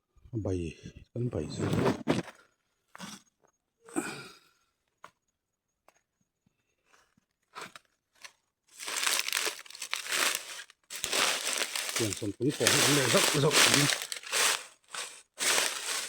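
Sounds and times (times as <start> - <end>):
crinkling and rustling: 6.9 - 16.0.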